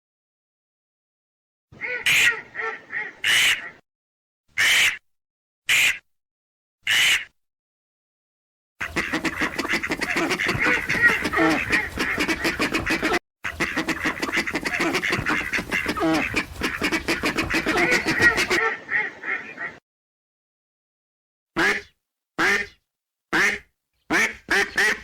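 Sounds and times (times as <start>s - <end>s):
ducks quacking: 1.8s - 3.8s, 8.8s - 19.8s, 23.4s - 25.0s.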